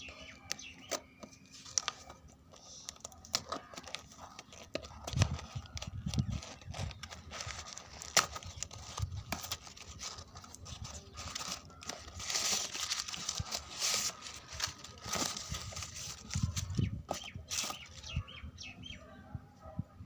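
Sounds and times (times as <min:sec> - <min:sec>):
packaging crinkling and rustling: 0:00.0 - 0:18.2.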